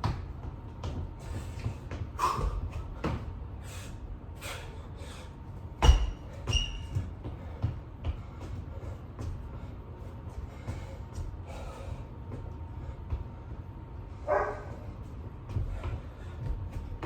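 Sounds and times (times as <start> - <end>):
person breathing heavily: 1.2 - 5.6, 7.3 - 13.6.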